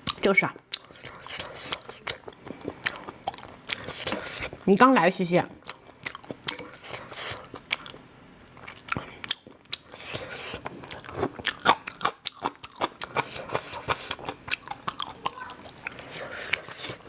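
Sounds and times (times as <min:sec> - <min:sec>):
chewing crunchy food: 0:00.0 - 0:04.8, 0:05.5 - 0:17.0.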